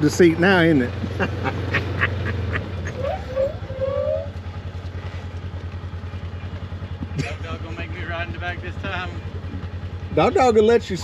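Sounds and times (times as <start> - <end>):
vehicle engine idling: 0.0 - 11.0
dog whining: 2.9 - 4.3.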